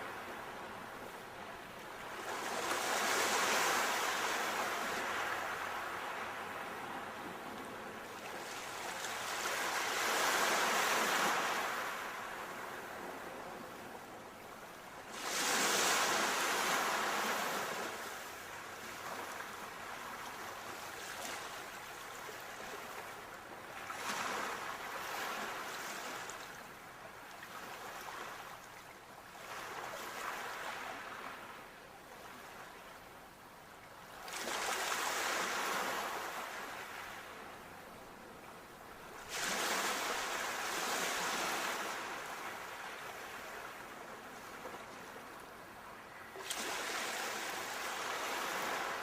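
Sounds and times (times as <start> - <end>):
ocean waves breaking on shore: 0.0 - 32.8, 34.1 - 38.3, 38.9 - 49.0.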